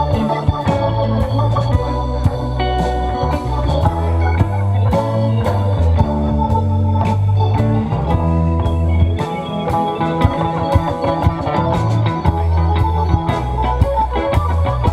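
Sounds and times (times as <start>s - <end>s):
bass guitar low notes: 0.0s - 14.9s
drums steady beat: 0.0s - 14.9s
lead guitar: 0.0s - 14.9s
organ: 0.0s - 14.9s.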